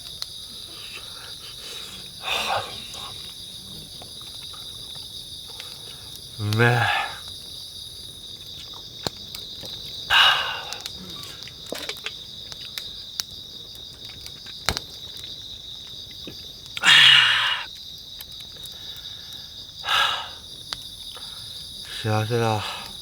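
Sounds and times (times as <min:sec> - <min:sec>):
crickets chirring: 0:00.0 - 0:23.0
loud breathy bursts: 0:00.4 - 0:03.9, 0:05.5 - 0:07.3, 0:10.1 - 0:11.4, 0:16.8 - 0:17.7, 0:18.8 - 0:20.4, 0:22.6 - 0:23.0.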